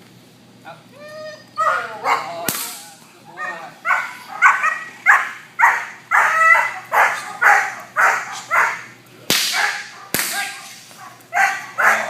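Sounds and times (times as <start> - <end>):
dog barking: 1.6 - 2.4, 3.4 - 8.9, 9.5 - 12.0
whip crack: 2.4 - 2.9, 9.3 - 11.0.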